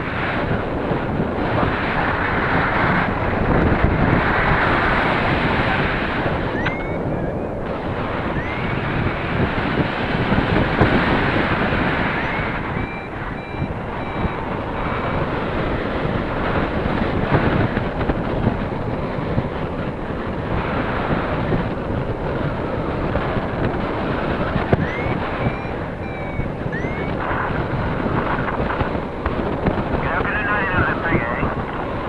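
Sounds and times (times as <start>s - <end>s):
wind buffeting microphone: 0.0s - 32.0s
faint short high beeps: 6.6s - 7.4s, 12.2s - 14.4s, 24.8s - 27.1s.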